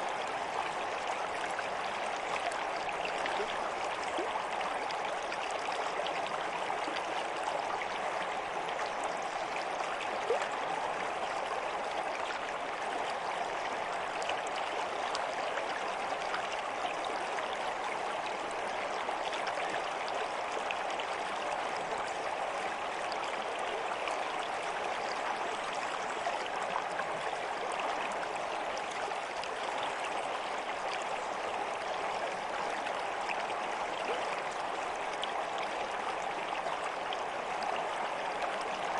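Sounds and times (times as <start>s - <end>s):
stream water rushing and splashing: 0.0s - 38.9s.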